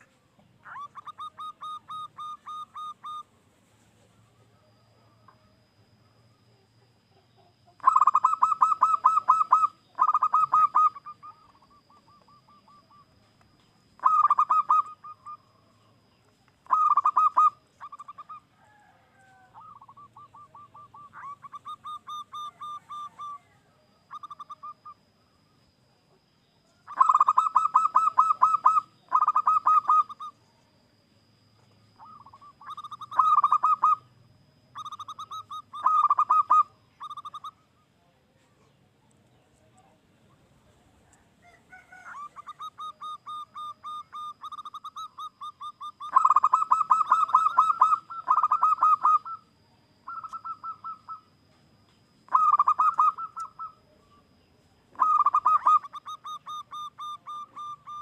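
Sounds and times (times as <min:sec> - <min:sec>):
dove trilled cooing: 0:00.0 - 0:03.4, 0:04.0 - 0:37.8, 0:38.6 - 0:51.6, 0:52.2 - 0:58.0.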